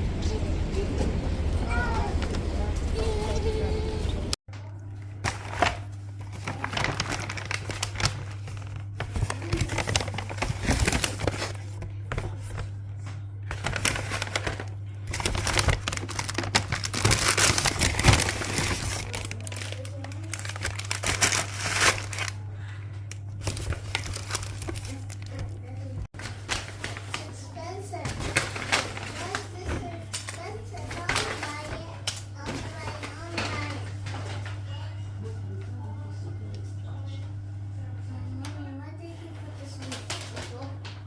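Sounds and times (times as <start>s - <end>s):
steady low hum: 0.0s - 41.0s
paper bags crinkling: 5.2s - 12.7s, 13.5s - 22.4s, 23.1s - 31.9s.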